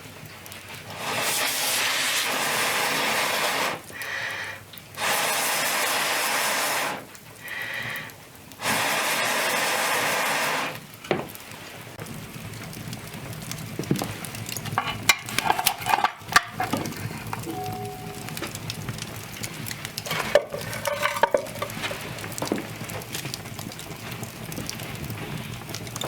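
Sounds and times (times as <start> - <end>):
loud bursts of hissing noise: 0.9 - 3.9, 5.0 - 7.1, 8.6 - 10.8
scraping: 14.7 - 17.5, 20.0 - 23.3.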